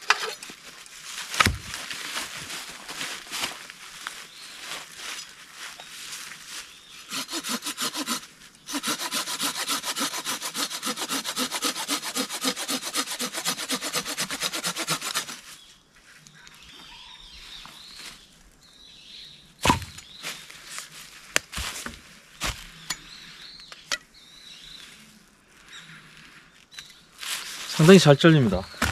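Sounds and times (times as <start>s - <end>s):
hand saw cutting wood: 7.1s - 15.4s.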